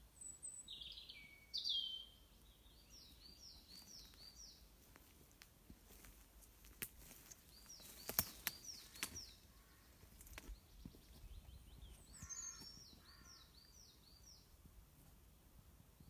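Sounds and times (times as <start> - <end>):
high down-slurred bird chirps: 7.5 - 14.3
harsh low bird calls: 7.5 - 14.4.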